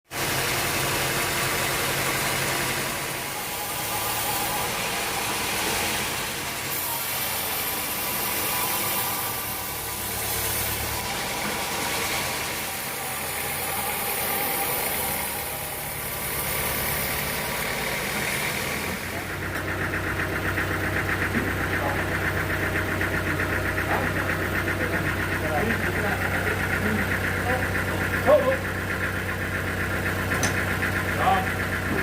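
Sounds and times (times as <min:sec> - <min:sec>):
engine idling with rattle: 0:00.1 - 0:32.0.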